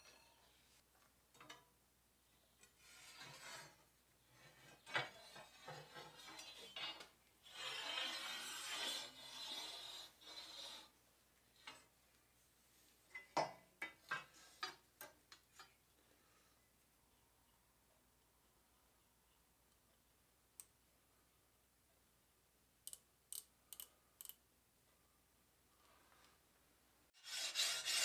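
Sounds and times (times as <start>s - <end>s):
stone rubbing on steel bar: 7.5s - 10.9s, 27.2s - 28.0s.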